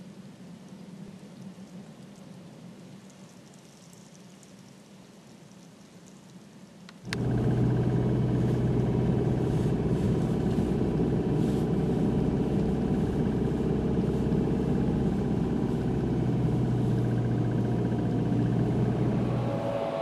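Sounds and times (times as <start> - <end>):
engine running steadily: 7.0 - 20.0.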